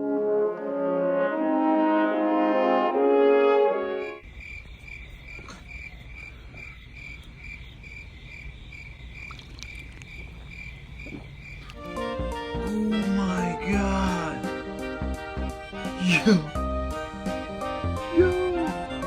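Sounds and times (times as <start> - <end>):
background music with brass: 0.0 - 4.2, 11.8 - 19.0
crickets chirping: 3.8 - 19.0.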